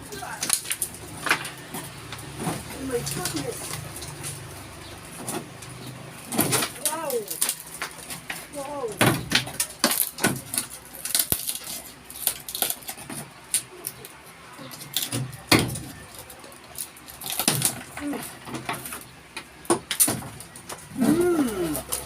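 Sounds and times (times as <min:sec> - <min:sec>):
wooden boards knocking and clattering: 0:00.2 - 0:04.4, 0:05.1 - 0:11.8, 0:14.8 - 0:16.2, 0:17.2 - 0:20.9.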